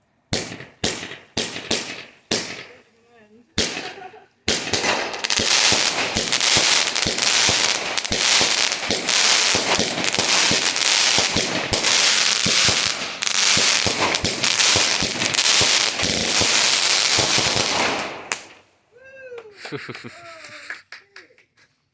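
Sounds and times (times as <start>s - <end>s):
fireworks crackling and banging: 0.3s - 18.8s.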